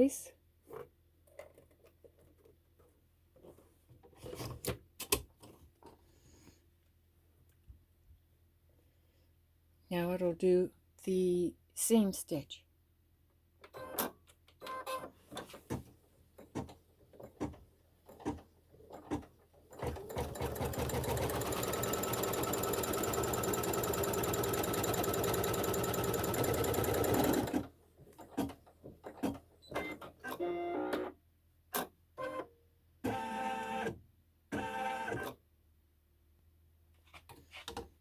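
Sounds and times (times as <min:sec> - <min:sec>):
embroidery machine stitching: 0:18.2 - 0:27.7.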